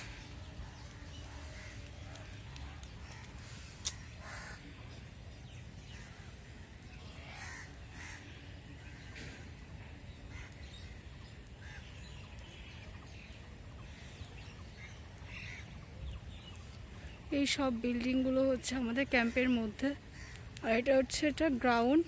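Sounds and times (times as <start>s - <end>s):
birds cawing: 0.0s - 5.0s, 7.2s - 9.6s, 10.2s - 12.1s, 13.8s - 16.0s, 19.1s - 20.8s
low outdoor rumble: 0.0s - 22.0s.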